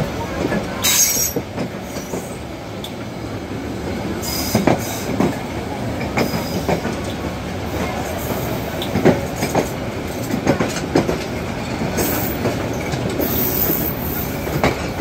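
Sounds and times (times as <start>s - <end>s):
train wheels rumbling on rail: 0.0s - 15.0s
wheels clacking over rail joints: 4.5s - 15.0s.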